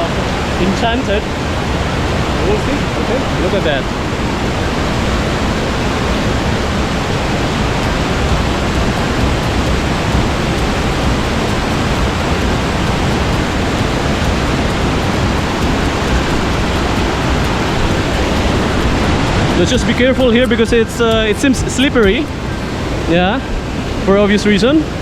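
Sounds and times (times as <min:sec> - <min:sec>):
waterfall crashing: 0:00.0 - 0:25.0.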